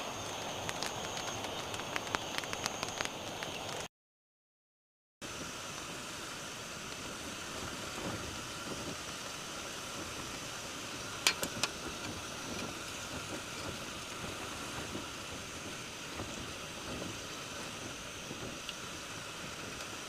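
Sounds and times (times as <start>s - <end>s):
steady rain: 0.0s - 3.9s, 5.2s - 20.0s.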